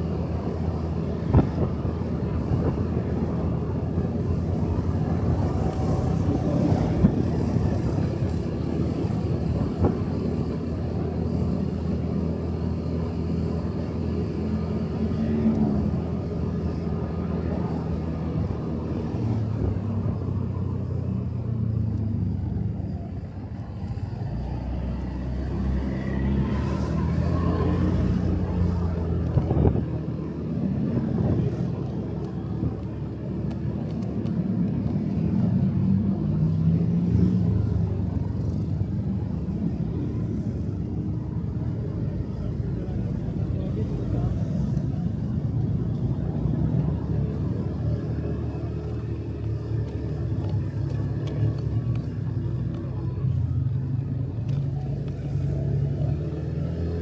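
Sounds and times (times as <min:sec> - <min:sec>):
road and wind noise: 0:00.0 - 0:57.0.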